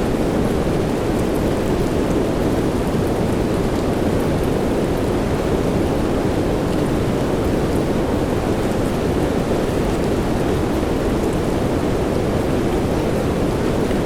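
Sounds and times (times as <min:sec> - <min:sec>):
faint patter of raindrops: 0:00.0 - 0:14.0
steady rain rushing: 0:00.0 - 0:14.0.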